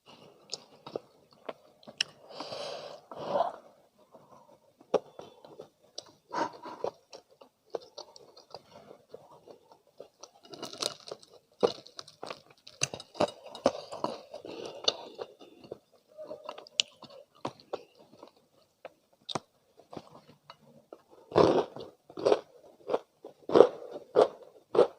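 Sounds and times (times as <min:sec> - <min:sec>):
chewing crispy fried chicken: 0:04.4 - 0:20.2.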